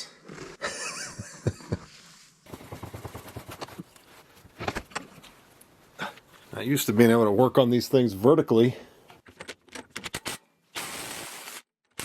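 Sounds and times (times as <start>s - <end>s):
tools clicking and knocking: 9.2s - 10.3s.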